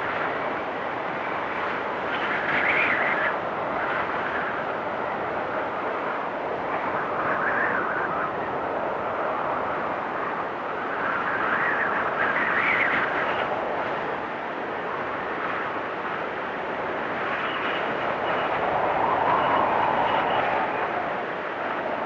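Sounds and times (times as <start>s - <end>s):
blizzard wind gusting and howling: 0.0s - 22.0s.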